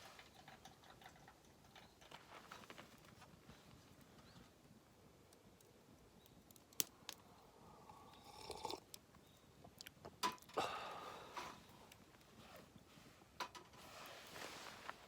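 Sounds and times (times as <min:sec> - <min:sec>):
camp gear clattering and rustling: 0:00.0 - 0:04.4, 0:12.3 - 0:15.0.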